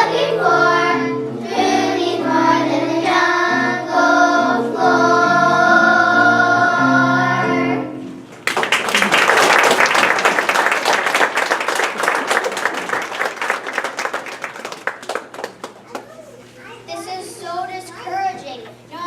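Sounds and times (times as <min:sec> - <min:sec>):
children's choir singing: 0:00.0 - 0:08.0
instrumental backing music: 0:00.0 - 0:08.4
audience applause: 0:08.4 - 0:16.2.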